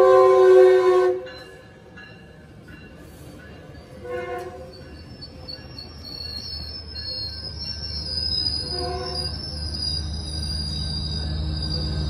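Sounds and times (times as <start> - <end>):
train rolling past: 0.0 - 12.0
high wheel squeal: 3.8 - 12.0.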